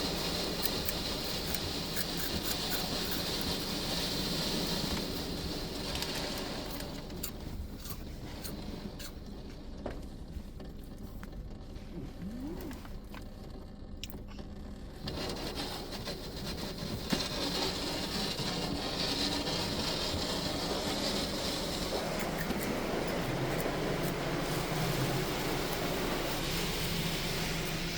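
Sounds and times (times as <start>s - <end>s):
water spray hitting car: 0.0s - 7.2s, 15.0s - 27.9s
low machine hum: 6.5s - 27.9s.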